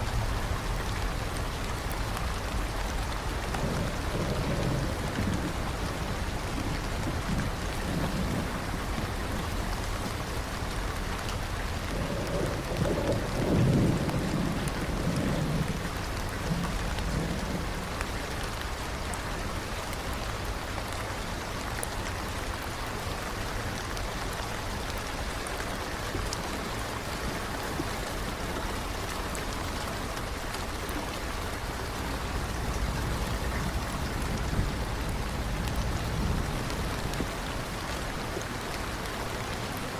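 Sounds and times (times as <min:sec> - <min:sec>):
thunder rumbling: 0:00.0 - 0:18.8, 0:27.0 - 0:39.0
steady rain: 0:00.0 - 0:39.9.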